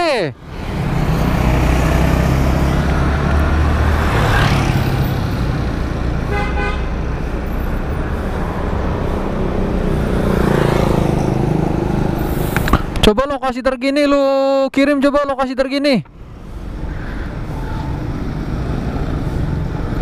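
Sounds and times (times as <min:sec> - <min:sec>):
road traffic noise: 0:00.0 - 0:20.0
vehicle horn toot: 0:06.3 - 0:07.0.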